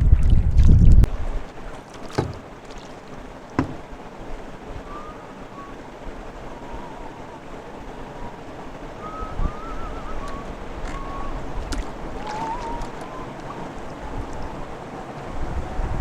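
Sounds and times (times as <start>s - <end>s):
water drips: 0.0s - 4.0s, 9.0s - 14.8s
paddle splashing in water: 0.0s - 4.2s, 10.2s - 14.5s
wind on microphone: 0.0s - 16.0s
knocks on canoe: 2.0s - 2.5s, 3.5s - 3.8s.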